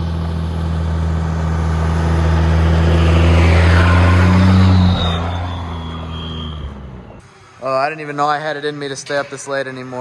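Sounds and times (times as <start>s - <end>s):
diesel engine revving: 0.0s - 7.6s
turbo whistle: 3.7s - 7.2s.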